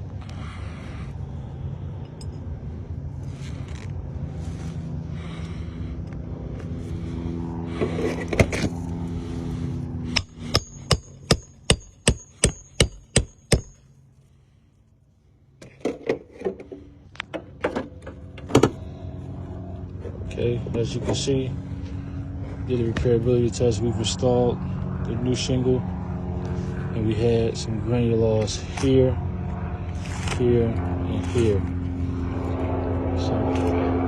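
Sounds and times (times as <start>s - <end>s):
low engine-like hum: 0.0s - 34.0s
hammer driving nails: 10.2s - 13.8s.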